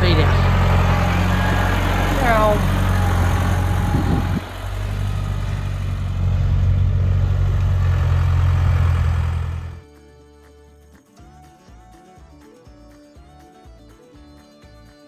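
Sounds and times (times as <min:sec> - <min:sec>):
farm vehicle engine running: 0:00.0 - 0:09.8.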